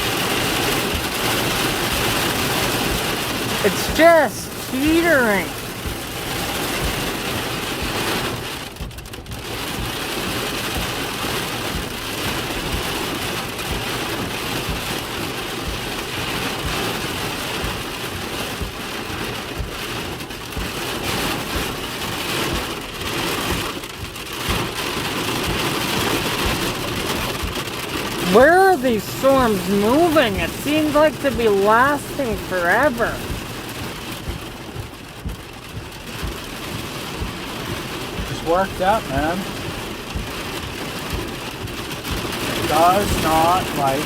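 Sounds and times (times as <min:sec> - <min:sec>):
heavy rain and hail pelting: 0:00.0 - 0:44.0.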